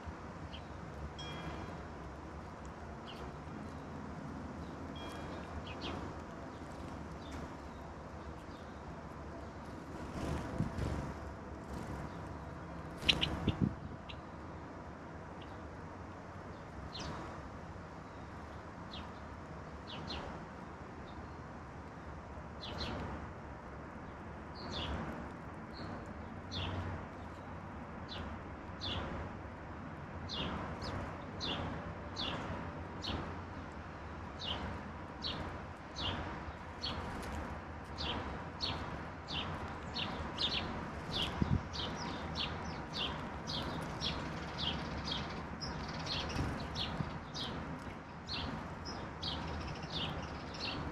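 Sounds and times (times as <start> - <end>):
birds chirping sharply: 13.0 - 14.2, 38.0 - 50.9.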